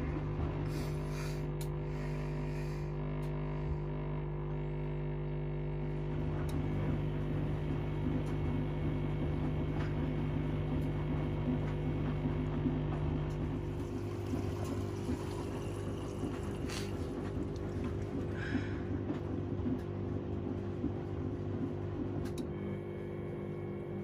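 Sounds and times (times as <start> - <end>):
washing machine motor hum: 0.0 - 24.0
water and laundry churning: 6.1 - 22.4.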